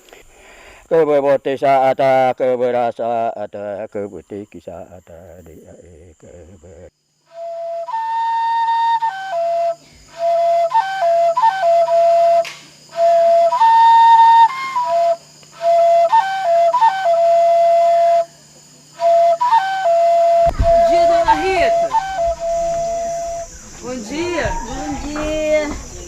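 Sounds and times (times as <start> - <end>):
solo flute melody: 7.3 - 25.0.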